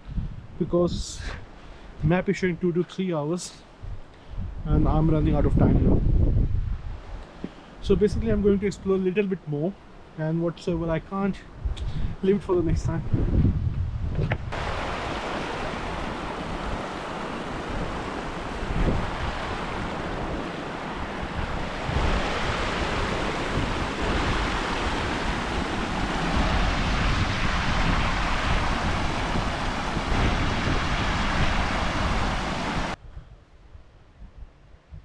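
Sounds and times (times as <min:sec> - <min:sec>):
wind buffeting microphone: 0:00.0 - 0:01.1, 0:03.8 - 0:07.2, 0:11.5 - 0:35.0.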